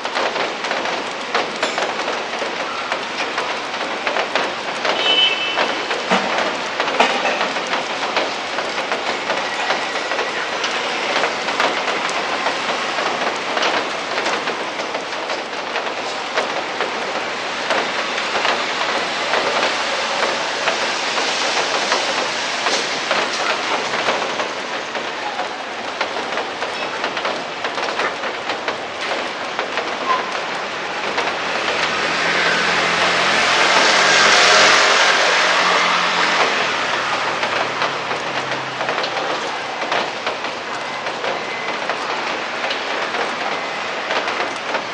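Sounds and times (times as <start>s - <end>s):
rain pattering on hard surfaces: 0.0s - 44.9s.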